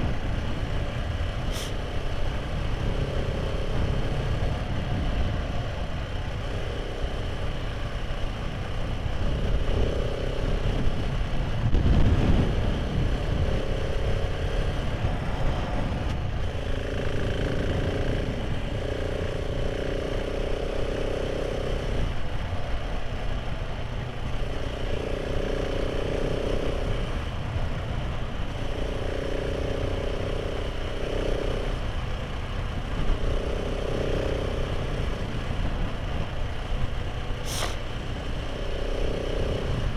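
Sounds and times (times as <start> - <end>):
motorcycle engine running: 0.0 - 39.9
wind on microphone: 9.2 - 18.8.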